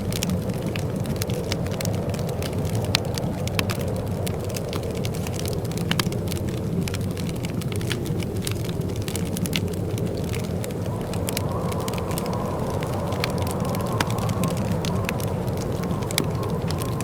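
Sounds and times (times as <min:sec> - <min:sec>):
wood fire crackling and popping: 0:00.0 - 0:17.0
fire low rushing: 0:08.8 - 0:17.0.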